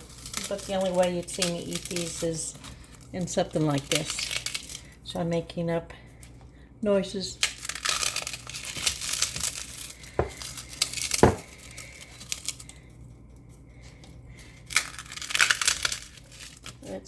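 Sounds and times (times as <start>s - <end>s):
pork rinds crunching: 0.0s - 5.0s, 7.4s - 12.9s, 13.8s - 17.0s.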